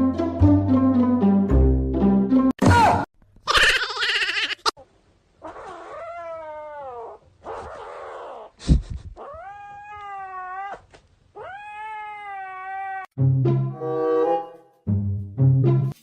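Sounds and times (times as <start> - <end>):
cat yowling: 5.4 - 8.5, 9.2 - 13.1.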